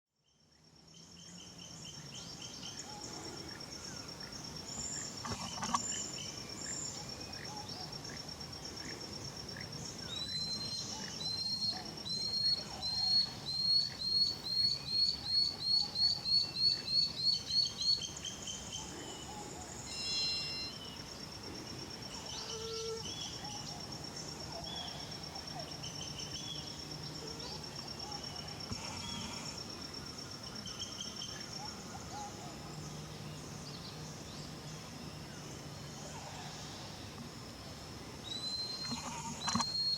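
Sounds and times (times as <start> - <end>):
insect trill: 0.2 - 39.9
other forest birds calling: 0.2 - 39.9.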